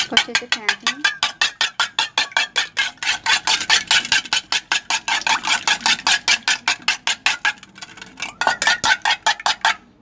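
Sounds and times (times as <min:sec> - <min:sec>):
utensil beating egg in bowl: 0:00.0 - 0:09.8.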